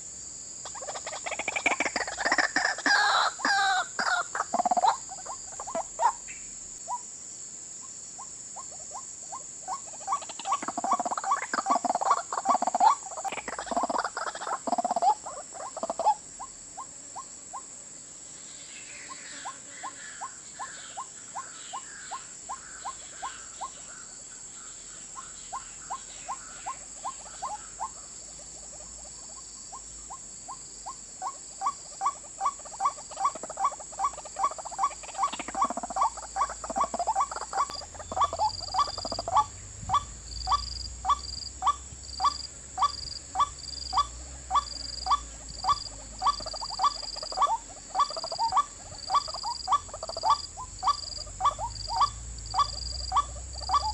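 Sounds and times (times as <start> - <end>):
waterhen calling: 0.7 - 6.3, 9.7 - 16.2, 31.2 - 53.9.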